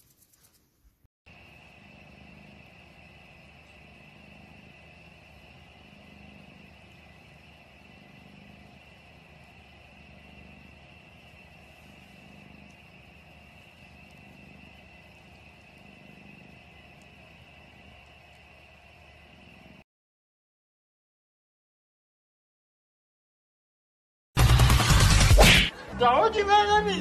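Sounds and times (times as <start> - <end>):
cat purring: 1.3 - 19.8.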